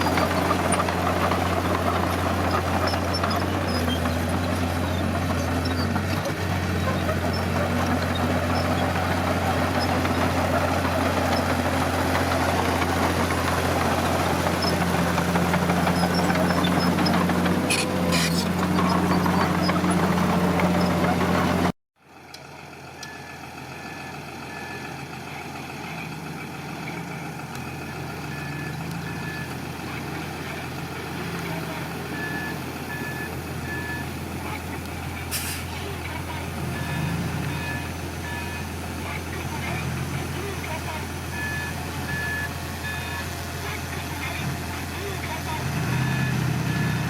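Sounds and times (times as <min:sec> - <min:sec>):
diesel engine running hard: 0:00.0 - 0:47.0
quieter diesel engine: 0:00.0 - 0:47.0
reversing alarm beeping: 0:23.0 - 0:25.1, 0:27.9 - 0:29.6, 0:32.1 - 0:34.2, 0:36.6 - 0:38.8, 0:41.3 - 0:43.3, 0:45.8 - 0:47.0.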